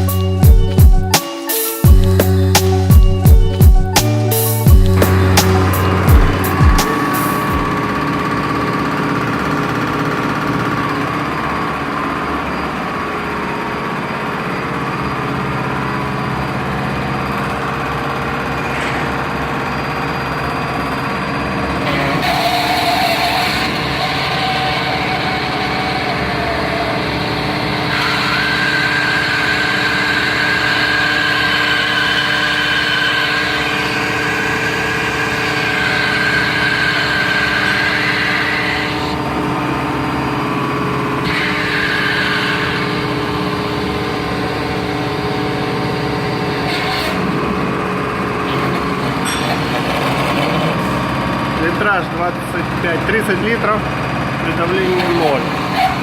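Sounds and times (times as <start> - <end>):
high steady whine: 1.8 - 56.0
hydraulic pump hum: 1.9 - 56.0.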